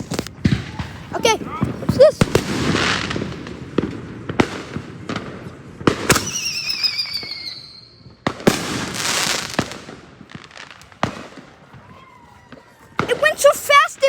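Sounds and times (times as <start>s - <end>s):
fireworks bangs and crackling: 0.0s - 14.0s
wavering firework whistle: 6.1s - 8.2s.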